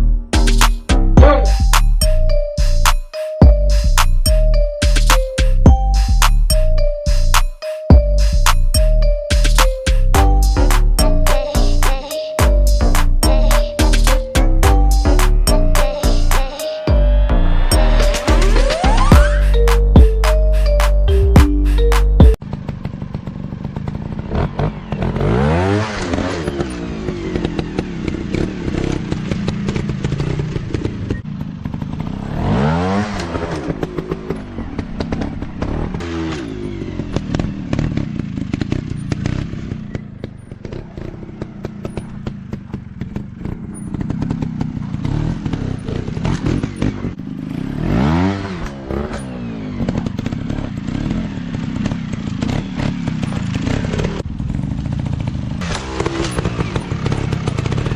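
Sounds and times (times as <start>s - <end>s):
dirt bike engines revving: 22.5s - 57.9s.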